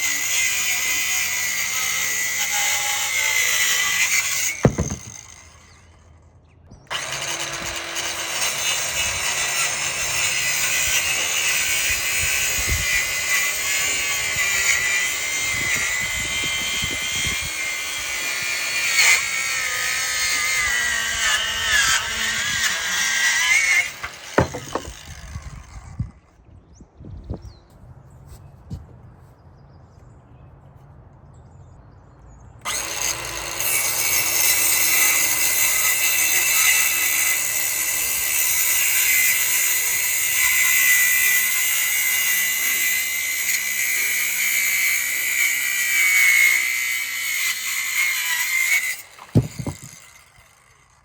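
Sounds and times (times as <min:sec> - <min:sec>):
circular saw cutting wood: 0:00.0 - 0:06.2, 0:06.9 - 0:26.1, 0:32.6 - 0:51.0
saw stopping thump: 0:04.1 - 0:05.8, 0:23.7 - 0:25.8, 0:48.8 - 0:50.3.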